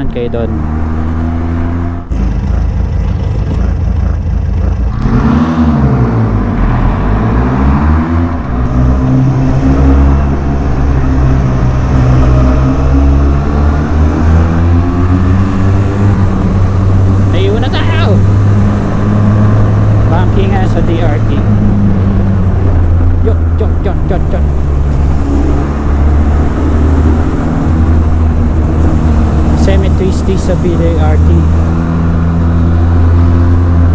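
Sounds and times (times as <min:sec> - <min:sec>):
motorcycle engine running: 0:00.0 - 0:06.9.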